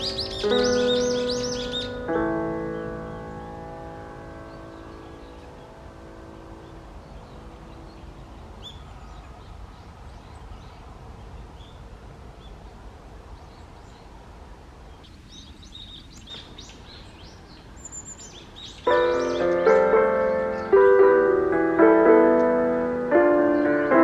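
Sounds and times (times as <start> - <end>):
piano music: 0.0 - 8.4, 18.9 - 24.0
small birds chirping: 0.0 - 24.0.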